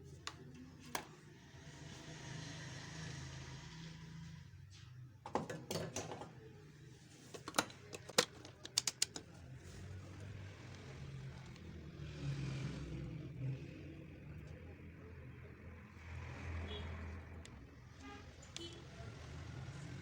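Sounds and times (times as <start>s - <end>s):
tools clicking and knocking: 7.3s - 9.4s.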